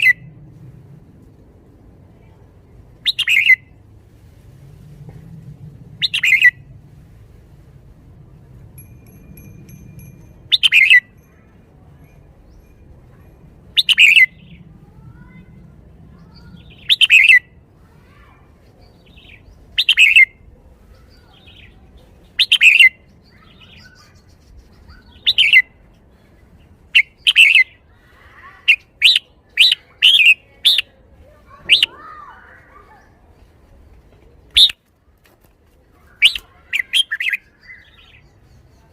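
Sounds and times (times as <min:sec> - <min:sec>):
bird singing short phrases: 0:36.2 - 0:38.9.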